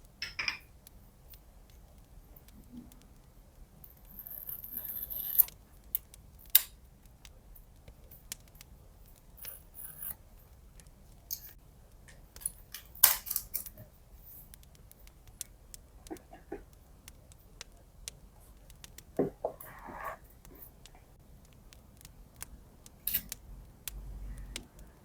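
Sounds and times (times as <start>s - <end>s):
scissors cutting: 4.1s - 5.6s
scissors snipping and clicking: 22.4s - 24.8s.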